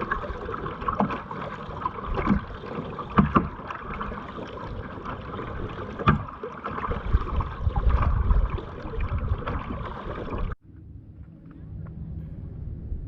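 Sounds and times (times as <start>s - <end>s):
water splashing around kayak: 0.0s - 10.6s
low rumble: 7.1s - 13.0s.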